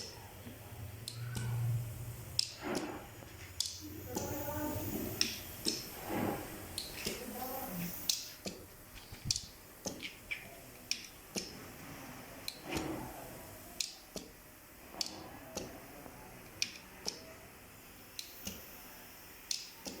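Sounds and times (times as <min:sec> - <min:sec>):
fan switches clicking: 0:02.4 - 0:02.9.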